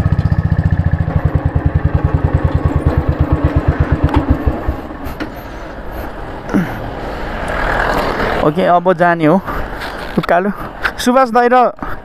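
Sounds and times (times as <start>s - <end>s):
motorcycle engine idling: 0.0s - 5.9s.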